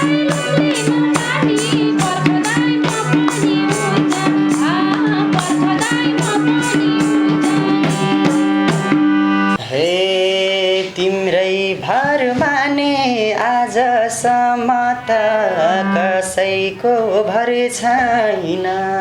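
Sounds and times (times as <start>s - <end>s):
hand drum beat: 0.0s - 9.2s
sustained folk melody: 0.0s - 9.6s.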